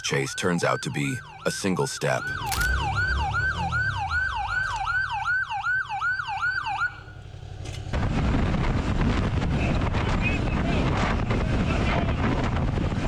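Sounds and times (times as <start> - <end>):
police siren: 0.0 - 7.3
wind rush on microphone: 8.0 - 13.0.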